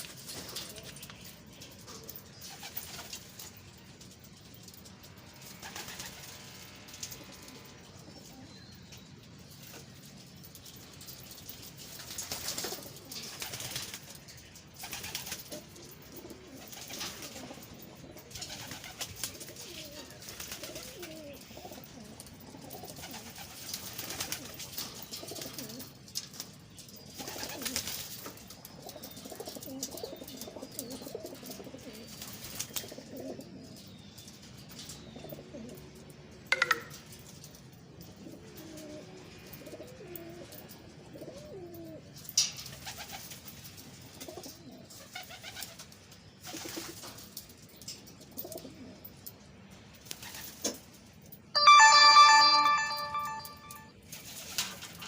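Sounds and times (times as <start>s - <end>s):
pigeons cooing: 14.8s - 23.6s, 38.2s - 42.1s.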